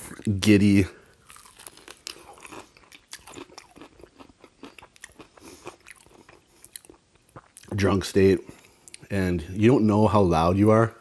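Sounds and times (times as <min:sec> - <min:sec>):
chewing crunchy fried chicken: 0:01.2 - 0:07.8.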